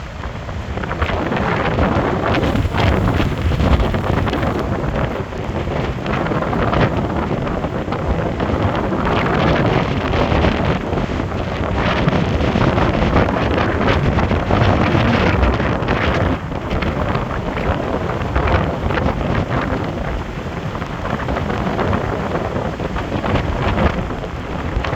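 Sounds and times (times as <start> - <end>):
strong wind buffeting microphone: 0.0 - 24.9
waves rushing on shore: 2.4 - 5.3.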